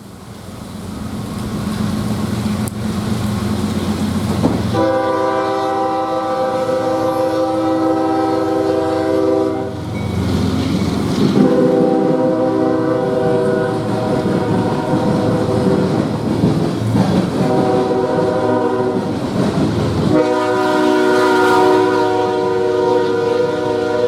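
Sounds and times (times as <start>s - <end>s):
train rumbling: 0.0s - 24.0s
locomotive air horn blast: 4.6s - 10.3s, 11.3s - 16.0s, 17.4s - 19.2s, 20.0s - 24.0s.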